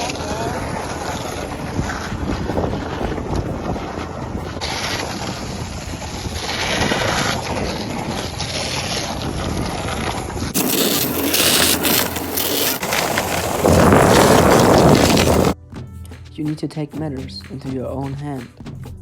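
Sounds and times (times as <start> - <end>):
skateboard wheels rolling on pavement: 0.0 - 15.6
wind on microphone: 0.0 - 15.6.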